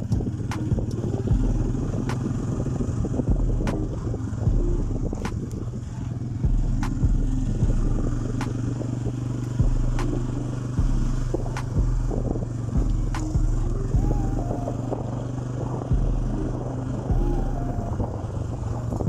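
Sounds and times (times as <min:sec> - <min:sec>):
motorcycle engine running: 0:00.0 - 0:19.0
sharp engine tick: 0:06.7 - 0:13.8.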